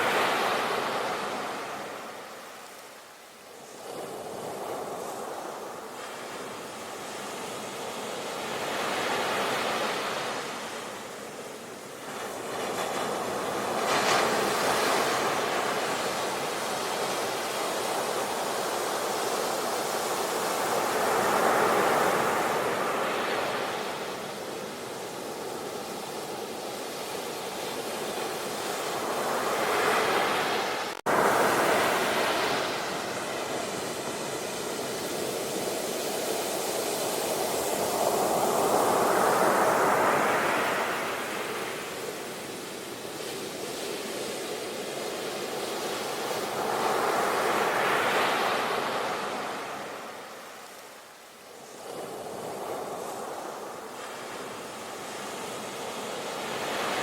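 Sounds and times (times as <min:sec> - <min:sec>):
ocean waves breaking: 0:26.8 - 0:42.9.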